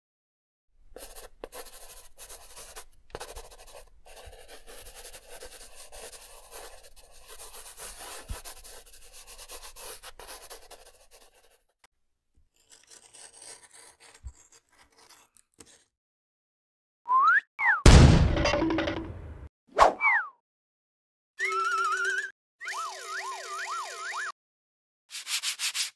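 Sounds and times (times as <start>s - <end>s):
pen scratching on paper: 0.9s - 11.8s, 12.6s - 15.9s.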